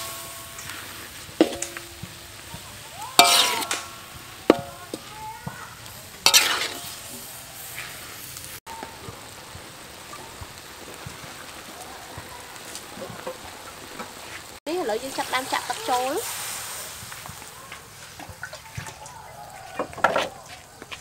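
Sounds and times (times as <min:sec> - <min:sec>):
ladle clanging on wok: 0:00.0 - 0:02.4, 0:03.2 - 0:05.1, 0:06.2 - 0:07.0
metal ladle scraping wok: 0:00.0 - 0:05.1, 0:05.8 - 0:08.5
meat sizzling in a wok: 0:00.0 - 0:21.0.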